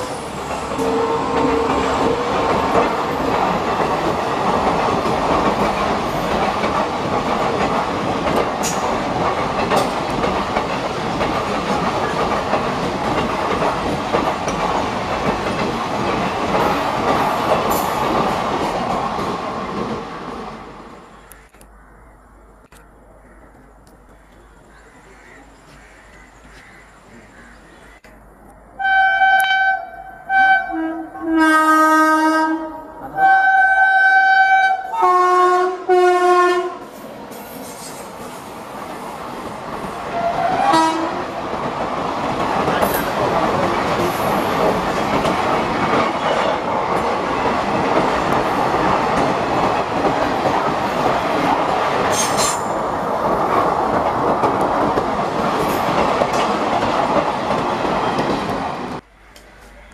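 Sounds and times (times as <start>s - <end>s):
train wheels rushing on rails: 0.0s - 21.6s, 36.0s - 59.9s
two-pitch locomotive horn blasts: 0.7s - 2.4s, 28.8s - 36.8s, 40.2s - 41.2s.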